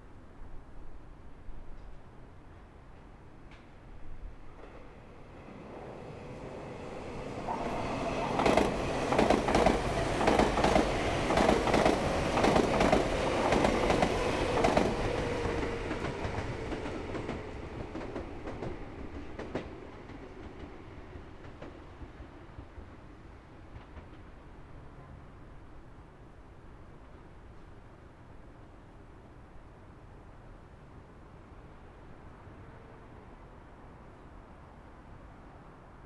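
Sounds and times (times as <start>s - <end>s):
train hum: 2.6s - 25.2s
train wheels clattering: 5.5s - 21.9s.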